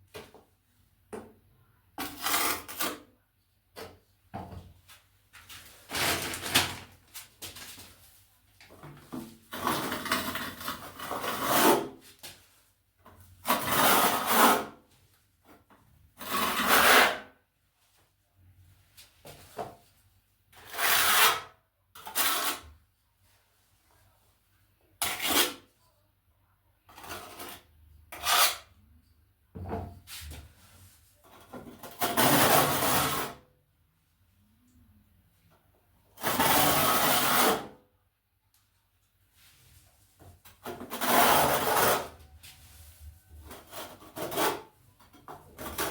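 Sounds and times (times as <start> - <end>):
trowel scraping tile adhesive: 2.0 - 3.1, 5.9 - 6.6, 9.3 - 12.1, 13.4 - 14.8, 16.2 - 17.3, 20.6 - 22.8, 25.0 - 25.7, 26.9 - 28.7, 31.2 - 33.4, 36.2 - 37.8, 40.5 - 42.3, 43.5 - 45.9.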